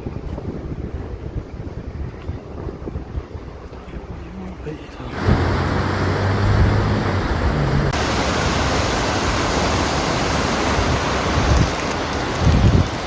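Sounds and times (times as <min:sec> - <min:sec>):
waterfall rushing: 0:05.0 - 0:13.0.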